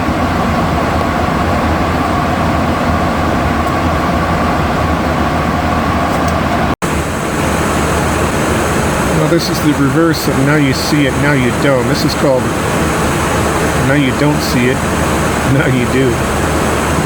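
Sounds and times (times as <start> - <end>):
airflow and air-conditioning rush: 0.0 - 17.0
faint steady hum: 6.8 - 17.0.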